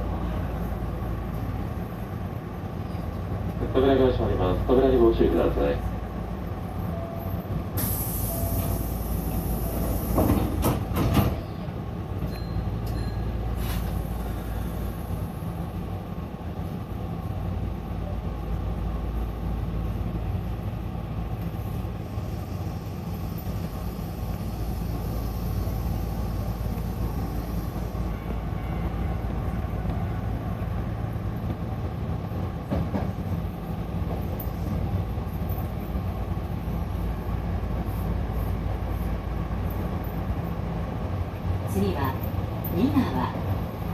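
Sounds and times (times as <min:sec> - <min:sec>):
train rumbling on rails: 0:00.0 - 0:43.9
air hissing: 0:07.8 - 0:10.3.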